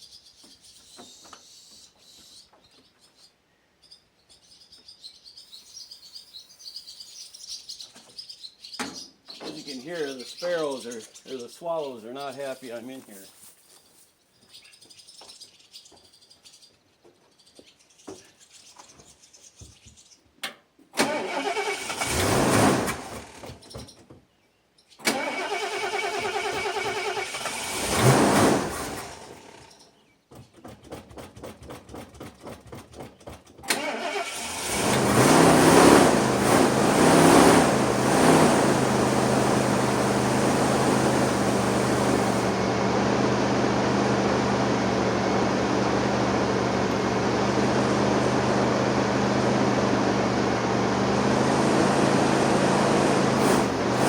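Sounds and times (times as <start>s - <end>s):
gasoline engine revving and idling: 21.0s - 23.5s, 25.1s - 29.7s, 33.7s - 54.0s
starter motor cranking: 21.0s - 23.5s, 25.0s - 29.6s, 33.6s - 42.7s, 53.3s - 54.0s.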